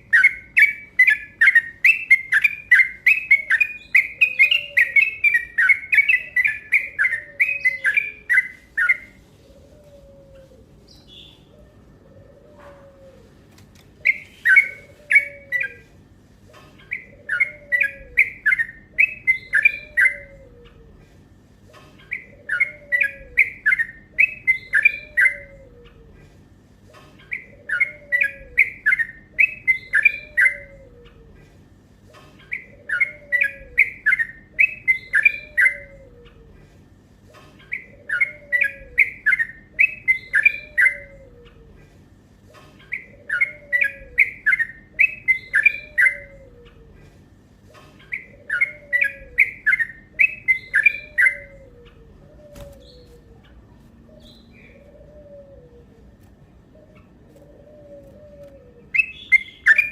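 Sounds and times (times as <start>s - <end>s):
bird singing rapid song: 0.0s - 9.2s, 14.0s - 15.8s, 16.8s - 20.4s, 22.0s - 25.6s, 27.2s - 30.9s, 32.4s - 36.0s, 37.6s - 41.2s, 42.8s - 46.8s, 48.0s - 54.9s, 58.8s - 59.9s.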